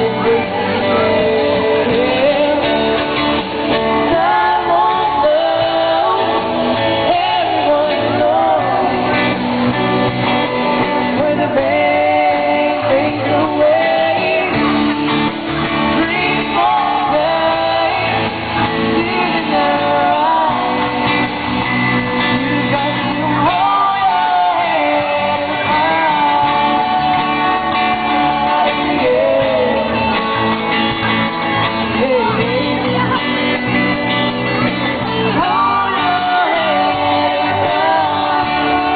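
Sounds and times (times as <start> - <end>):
guitar: 0.0 - 38.9
live band playing: 0.0 - 38.9
man singing: 0.0 - 38.9.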